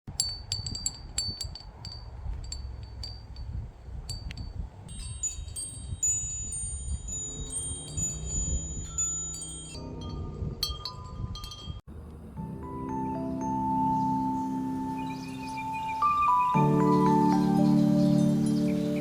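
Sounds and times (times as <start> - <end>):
metal chimes tinkling: 0.1 - 11.9
steady low rumble: 0.1 - 12.9.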